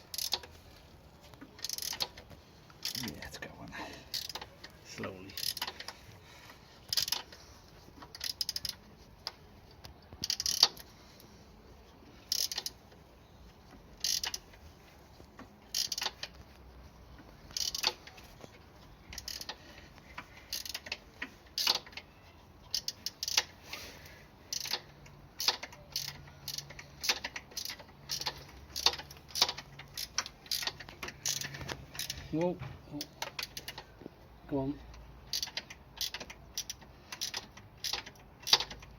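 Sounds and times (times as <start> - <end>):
ratcheting hand tool clicks: 0.1 - 0.5, 1.5 - 3.1, 4.1 - 4.5, 5.4 - 5.9, 6.9 - 7.4, 8.0 - 9.4, 10.2 - 10.9, 12.3 - 12.8, 14.0 - 14.4, 15.7 - 16.4, 17.5 - 18.2, 19.1 - 22.0, 22.7 - 23.6, 24.5 - 32.2, 33.0 - 33.9, 35.3 - 38.9.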